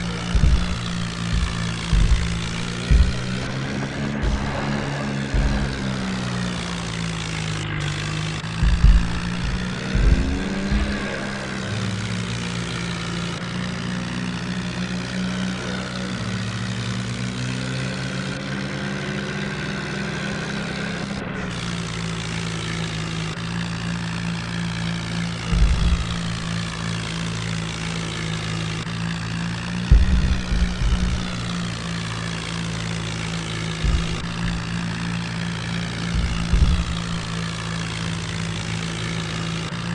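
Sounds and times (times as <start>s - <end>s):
low thumps: 0.0s - 13.5s, 25.4s - 26.8s, 28.8s - 39.4s
tractor engine droning: 0.0s - 39.9s.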